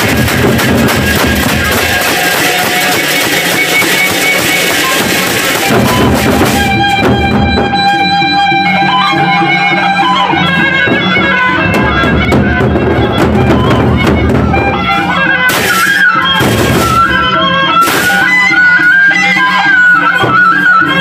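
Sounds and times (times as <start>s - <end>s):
big drums beaten: 0.0s - 8.3s, 10.8s - 18.4s
cymbals crashing: 15.5s - 17.2s, 17.8s - 18.3s.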